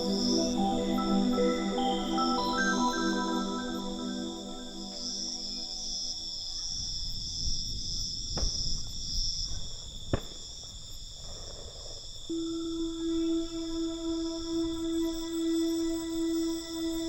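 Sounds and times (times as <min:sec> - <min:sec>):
held musical note: 0:00.0 - 0:06.2, 0:12.3 - 0:17.0
soft ambient music: 0:00.0 - 0:06.5, 0:12.3 - 0:17.0
crickets chirring: 0:00.0 - 0:17.0.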